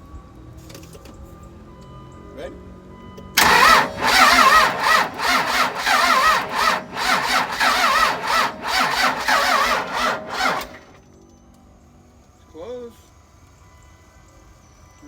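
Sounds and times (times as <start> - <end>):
diesel engine cranking slowly: 3.4 - 11.0.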